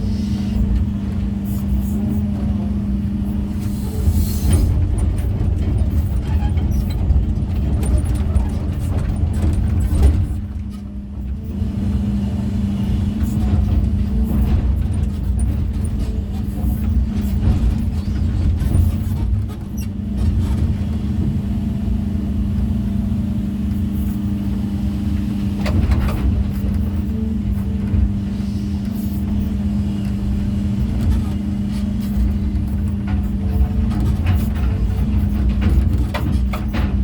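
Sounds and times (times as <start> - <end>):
heavy diesel engine droning: 0.0 - 37.0.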